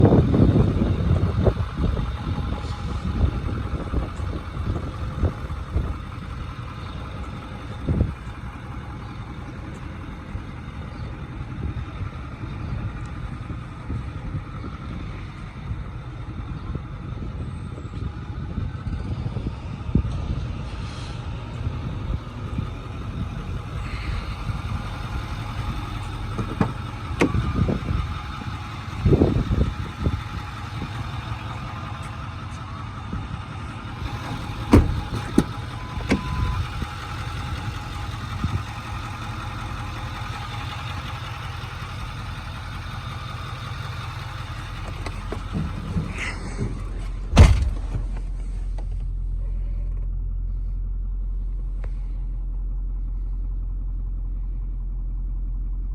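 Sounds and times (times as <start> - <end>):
diesel truck engine idling: 0.0 - 55.9
short thumps: 25.5 - 27.9, 34.0 - 36.6, 44.8 - 49.2.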